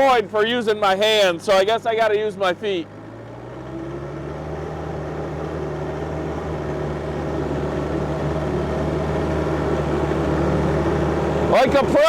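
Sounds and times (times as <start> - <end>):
mini excavator diesel engine: 0.0 - 12.0.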